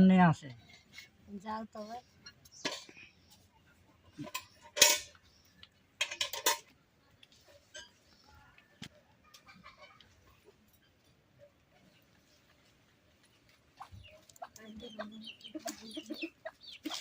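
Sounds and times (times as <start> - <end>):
metal pots clattering: 2.2 - 3.1, 4.0 - 6.7, 7.5 - 8.3, 15.6 - 17.0
hens clucking: 7.5 - 17.0.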